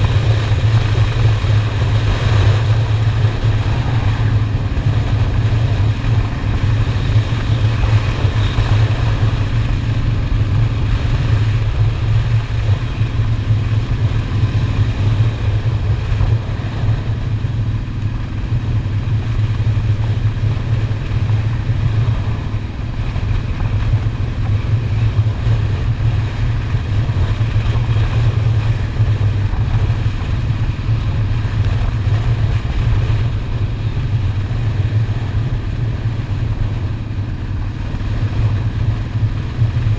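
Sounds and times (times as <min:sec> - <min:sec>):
motorcycle engine running: 0:00.0 - 0:39.9
road noise: 0:00.0 - 0:39.9.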